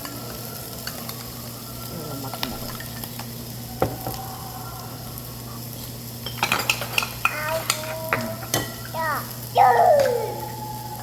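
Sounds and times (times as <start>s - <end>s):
utensils and dishes clinking: 0.0s - 1.2s, 6.2s - 9.1s
meat sizzling on a grill: 0.0s - 11.0s.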